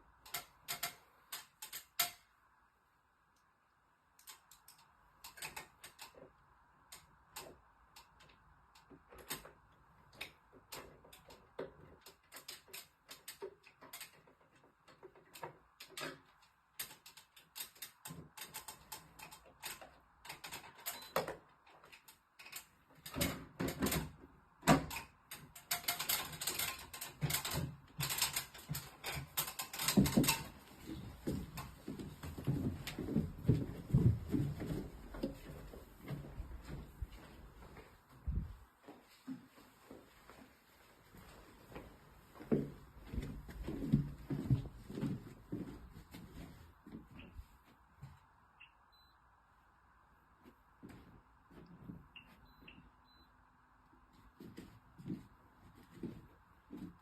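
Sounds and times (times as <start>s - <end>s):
small clicks and rattles: 0.0s - 2.4s, 4.2s - 38.5s.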